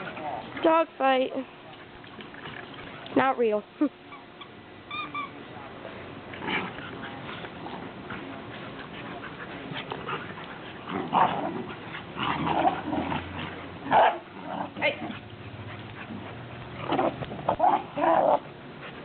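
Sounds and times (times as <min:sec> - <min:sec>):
puppies whimpering and yipping: 0:04.1 - 0:05.4
puppies scuffling: 0:06.2 - 0:14.0.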